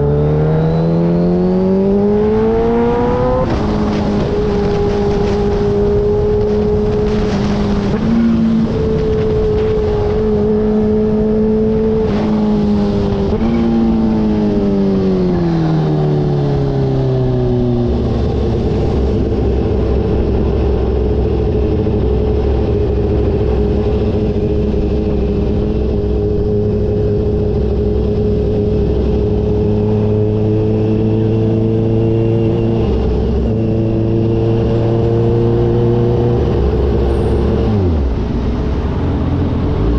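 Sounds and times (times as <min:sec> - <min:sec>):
motorcycle engine running: 0:17.5 - 0:39.9.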